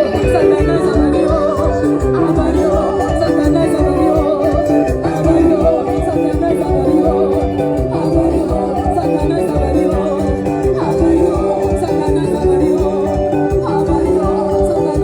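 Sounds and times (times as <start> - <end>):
band playing dance music: 0.0 - 15.0
person singing: 0.0 - 15.0.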